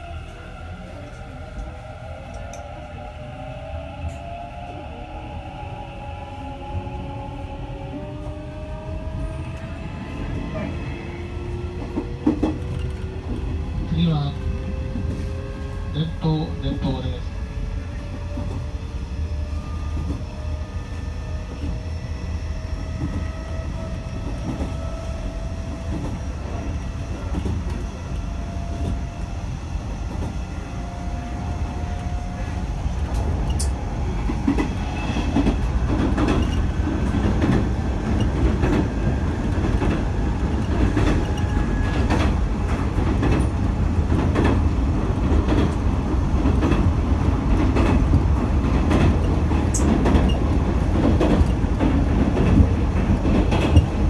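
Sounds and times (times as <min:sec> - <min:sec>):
wheels rumbling on rails: 0:00.0 - 0:54.0
rail joint clicks: 0:01.5 - 0:02.8, 0:11.5 - 0:13.6, 0:18.0 - 0:18.7, 0:19.8 - 0:21.8, 0:22.8 - 0:29.4, 0:30.0 - 0:30.4, 0:31.4 - 0:54.0.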